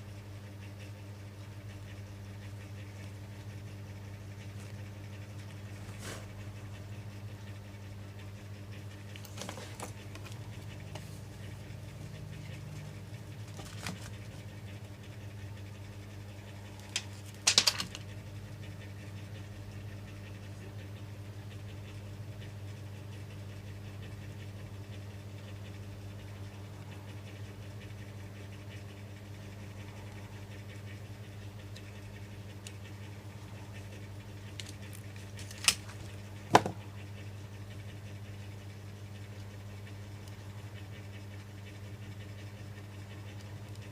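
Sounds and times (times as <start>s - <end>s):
low electrical hum: 0.0s - 43.9s
sharp clicks and knocks: 34.5s - 36.9s.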